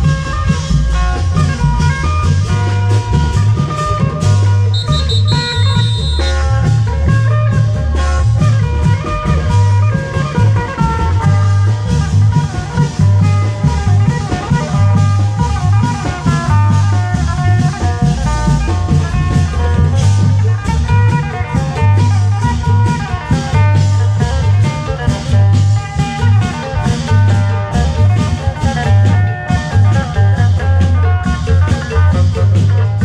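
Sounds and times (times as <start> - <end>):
bass line: 0.0 - 33.0
drum and cymbal band playing: 0.0 - 33.0
changing melody: 4.6 - 9.3.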